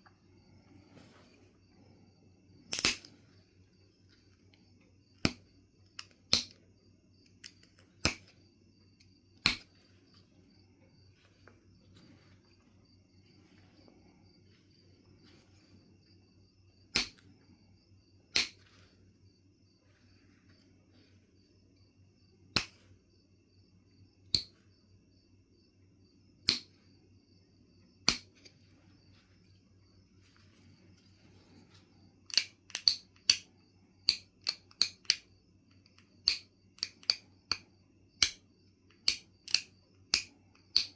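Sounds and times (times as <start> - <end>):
sharp clicks of flint knapping: 2.6 - 3.2, 5.2 - 6.6, 7.2 - 8.4, 9.0 - 9.9, 16.9 - 17.3, 18.3 - 18.8, 22.5 - 22.8, 24.3 - 24.6, 26.4 - 26.8, 28.0 - 28.6, 32.2 - 40.9.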